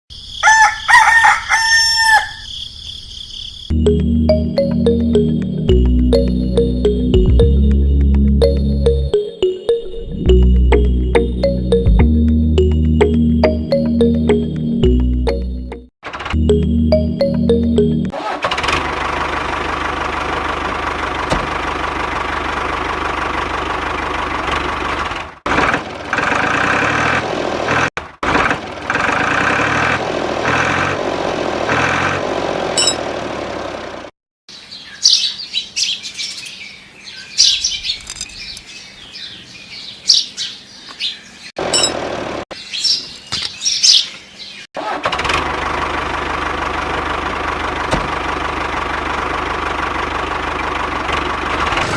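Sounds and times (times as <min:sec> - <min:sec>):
small engine running: 0:18.2 - 0:34.1, 0:44.8 - 0:51.9
high bird chirps: 0:34.5 - 0:44.7.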